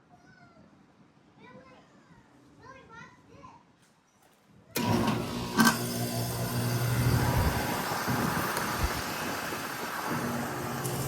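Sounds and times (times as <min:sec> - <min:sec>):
compressor humming: 0:04.8 - 0:11.0
condenser fan running: 0:04.8 - 0:11.0.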